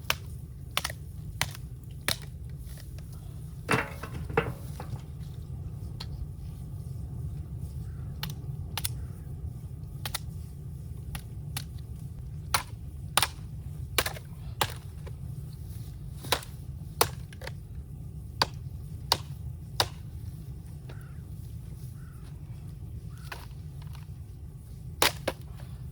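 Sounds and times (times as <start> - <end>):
bamboo cracking: 0.1 - 3.2, 23.1 - 24.2, 25.0 - 25.7.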